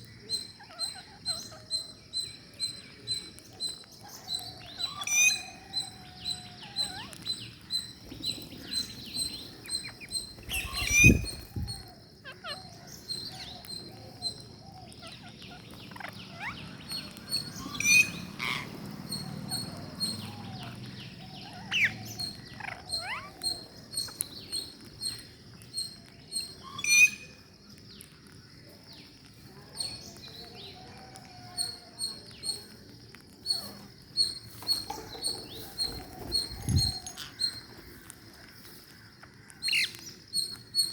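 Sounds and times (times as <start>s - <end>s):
parakeets chirping: 0.3s - 27.4s, 33.4s - 38.8s
sharp parakeet calls: 9.2s - 12.6s.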